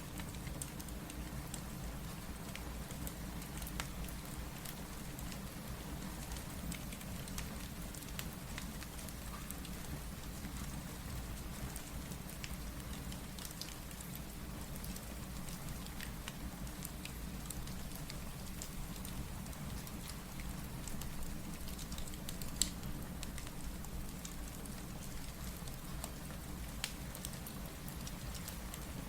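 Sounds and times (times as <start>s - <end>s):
steady rain falling: 0.0s - 29.0s
fireplace crackling: 11.4s - 29.0s.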